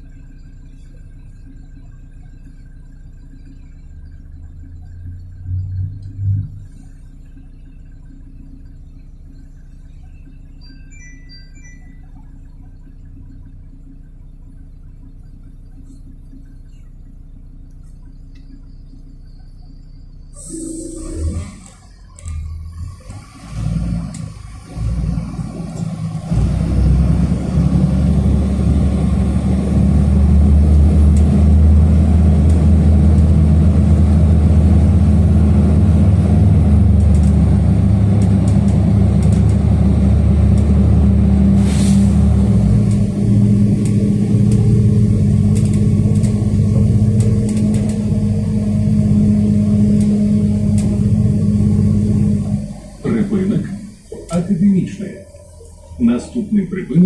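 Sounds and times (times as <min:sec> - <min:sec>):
bus engine drone: 0:00.0 - 0:57.0
short hiss: 0:41.6 - 0:42.2.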